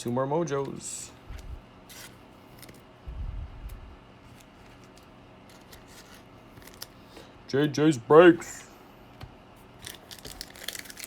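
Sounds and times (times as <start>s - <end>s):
wrapper crinkling: 4.4s - 7.0s, 9.8s - 11.0s.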